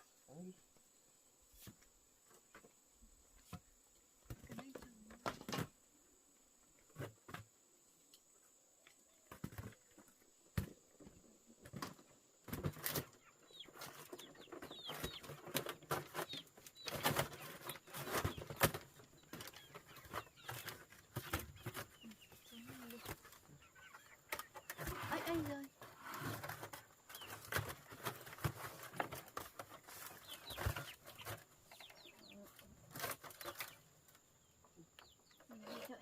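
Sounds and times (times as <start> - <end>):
chicks peeping: 11.0 - 36.0.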